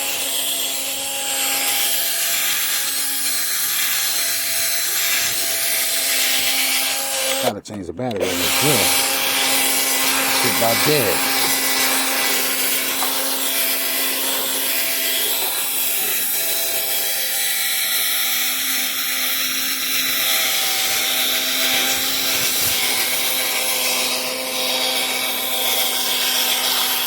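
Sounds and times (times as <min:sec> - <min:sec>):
cordless drill motor hum: 0:00.0 - 0:07.5, 0:08.1 - 0:27.0
pad rubbing on plastic: 0:21.7 - 0:23.0.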